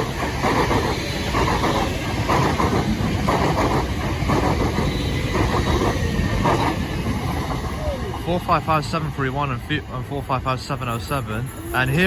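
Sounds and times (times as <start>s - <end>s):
train wheels clattering over joints: 0.0s - 9.9s
train rumble: 0.0s - 12.0s.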